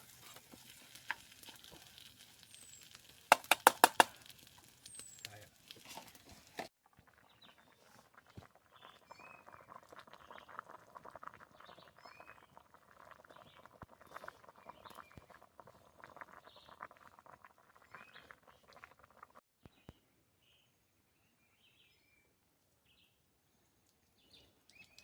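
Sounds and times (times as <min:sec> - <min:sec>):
food crackling over campfire: 0:00.0 - 0:19.4, 0:23.8 - 0:25.0.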